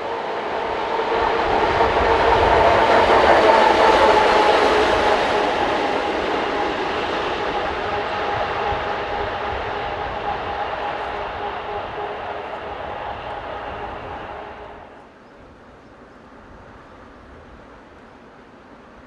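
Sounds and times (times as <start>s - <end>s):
wheels on rails: 0.0s - 15.1s
electric locomotive hum: 0.0s - 19.0s.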